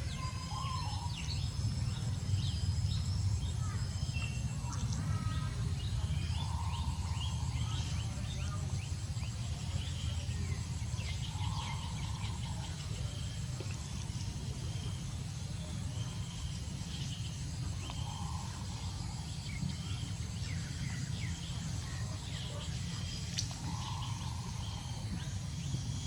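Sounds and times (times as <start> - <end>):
birds chirping: 0.2 - 26.0.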